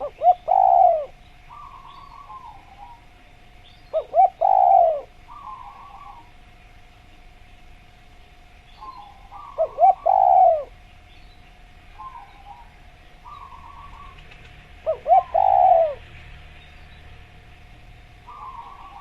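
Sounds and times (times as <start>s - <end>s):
dove cooing: 0.0s - 3.2s, 3.8s - 6.4s, 8.8s - 10.9s, 11.9s - 16.1s, 18.2s - 19.0s
soft bird chirping calls: 0.0s - 19.0s.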